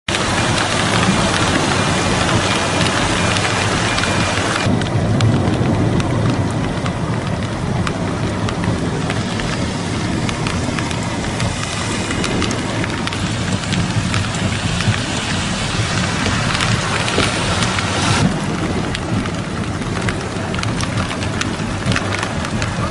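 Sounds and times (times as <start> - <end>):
heavy rain: 0.1 - 22.9
low storm rumble: 0.1 - 22.9.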